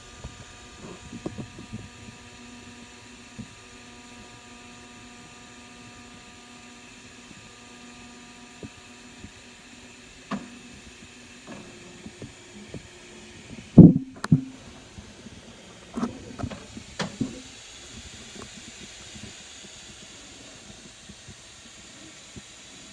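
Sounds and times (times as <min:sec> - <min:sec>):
machine hum: 0:13.8 - 0:14.8.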